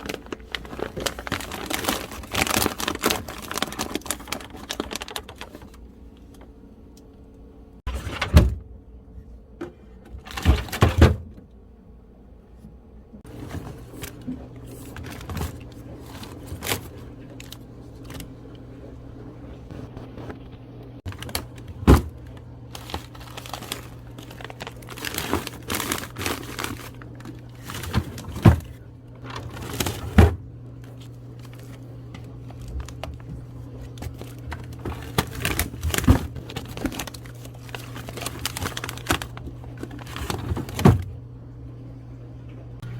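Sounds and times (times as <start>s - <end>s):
plastic crinkling: 0.0s - 6.4s, 13.2s - 18.6s, 21.0s - 41.1s
steady low hum: 0.0s - 42.9s.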